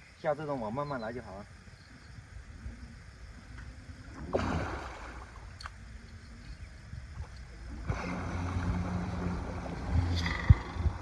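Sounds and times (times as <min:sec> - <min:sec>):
water splashing: 0:04.1 - 0:05.8, 0:07.1 - 0:11.0.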